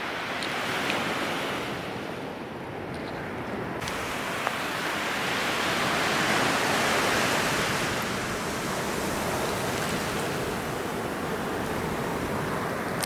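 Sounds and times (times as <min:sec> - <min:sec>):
ocean wave breaking: 0:03.7 - 0:13.0.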